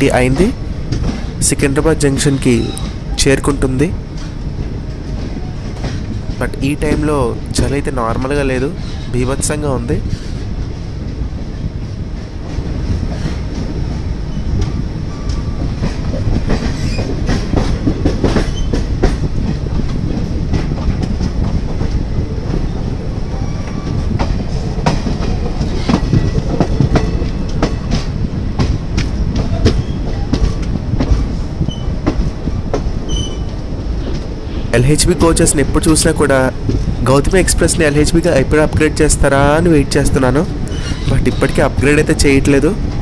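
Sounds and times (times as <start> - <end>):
train coach rumbling on track: 0.0 - 43.0
faint wheel squeals: 33.1 - 33.5, 40.7 - 41.7.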